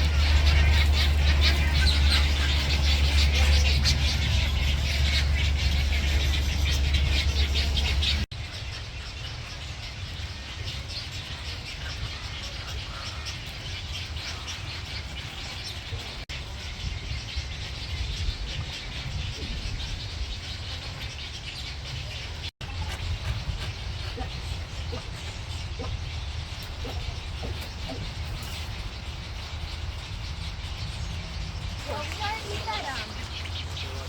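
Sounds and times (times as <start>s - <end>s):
low steady rumble: 0.0s - 8.3s
birds chirping and calling: 0.0s - 34.0s.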